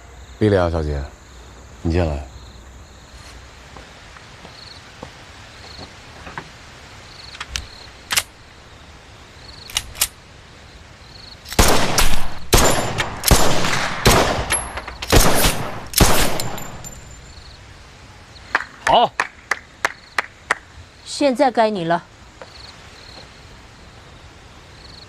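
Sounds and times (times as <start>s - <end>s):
crickets chirping: 0.0s - 25.0s
gunshots: 11.5s - 16.9s.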